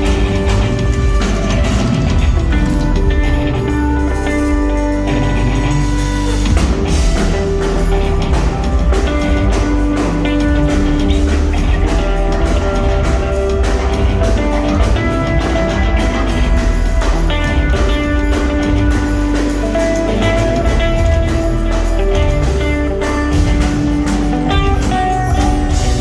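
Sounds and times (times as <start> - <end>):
drum kit beating: 0.0 - 26.0
rock band playing live: 0.0 - 26.0.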